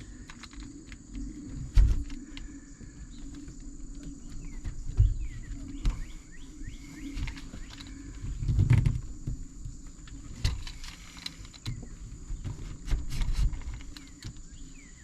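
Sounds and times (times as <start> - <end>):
frame low thumps: 2.9 - 10.0.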